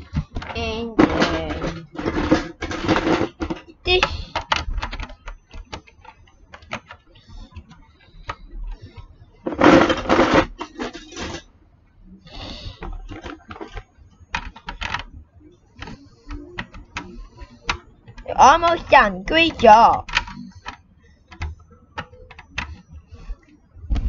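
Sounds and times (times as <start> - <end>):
loose plastic pieces rattling: 0.1 - 8.8, 9.4 - 11.4, 12.4 - 15.2.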